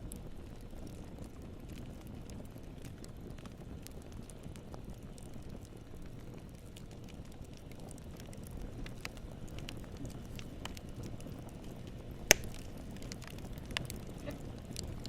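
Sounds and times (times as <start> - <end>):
wood fire rumbling and crackling: 0.0 - 15.0
wood popping: 6.0 - 15.0.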